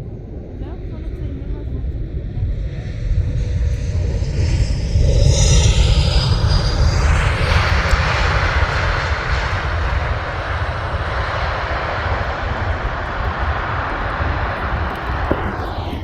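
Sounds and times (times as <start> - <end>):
jet airliner passing overhead: 0.0 - 16.0.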